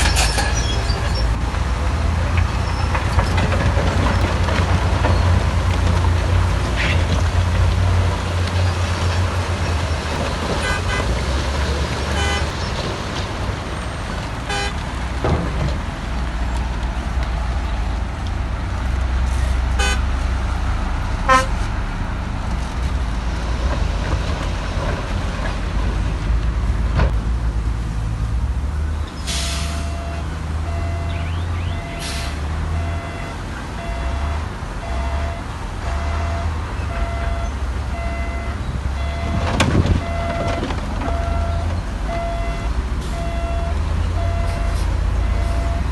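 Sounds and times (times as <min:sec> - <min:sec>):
diesel machinery rumbling: 0:00.0 - 0:45.9
metal knocks and clanks: 0:02.3 - 0:07.8, 0:15.1 - 0:16.7
reversing alarm beeping: 0:29.6 - 0:45.9.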